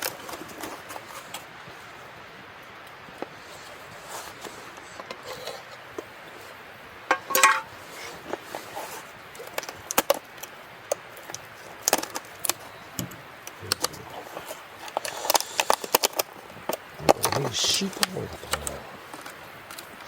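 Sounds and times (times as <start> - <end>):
camp cooking gear knocking: 7.1 - 7.7.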